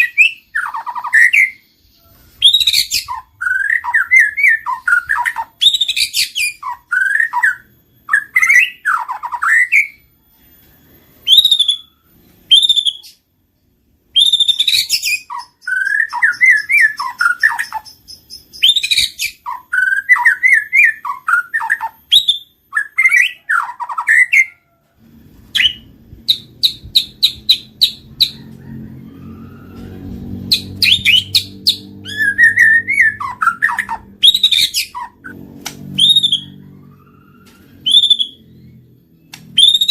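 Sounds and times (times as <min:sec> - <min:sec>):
bird singing whistled phrases: 0:00.0 - 0:10.0, 0:11.2 - 0:13.2, 0:14.1 - 0:24.6, 0:30.5 - 0:35.3, 0:35.9 - 0:36.6, 0:37.3 - 0:38.8, 0:39.6 - 0:39.9.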